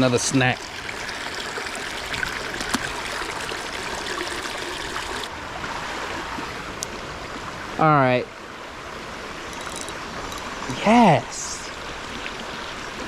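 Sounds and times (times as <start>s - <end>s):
creek running: 0.0s - 13.0s.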